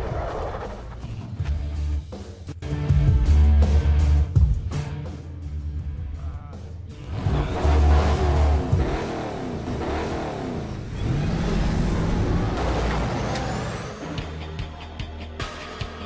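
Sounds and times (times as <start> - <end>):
engine revving with low rumble: 6.9 - 14.4.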